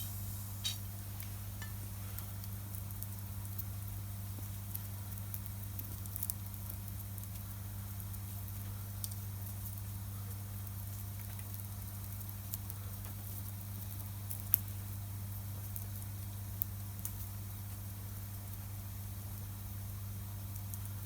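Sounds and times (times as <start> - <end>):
steady low hum: 0.0 - 14.1.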